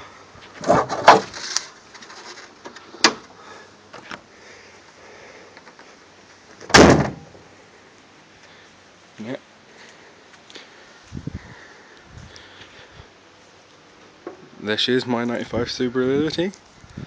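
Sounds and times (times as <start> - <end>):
car bonnet slamming shut: 6.7 - 7.3.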